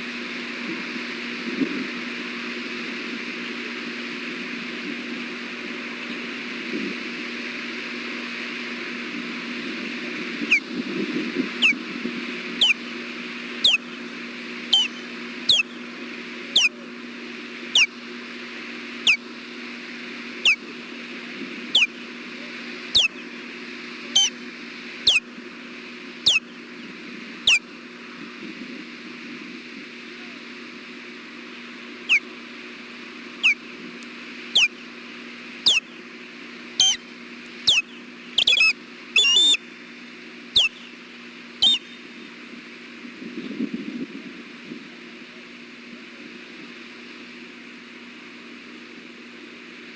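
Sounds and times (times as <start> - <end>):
osprey alert calls: 10.4 - 10.7, 11.5 - 11.8, 12.5 - 13.0, 13.6 - 15.9, 16.5 - 16.8, 17.7 - 18.0, 19.0 - 19.3, 20.4 - 20.7, 21.7 - 22.1, 22.9 - 23.3, 24.1 - 24.4, 25.0 - 25.3, 26.2 - 26.5, 27.4 - 27.7, 32.0 - 32.4, 33.4 - 33.7, 34.5 - 35.0, 35.6 - 36.1, 36.8 - 39.6, 40.5 - 41.0, 41.6 - 42.0.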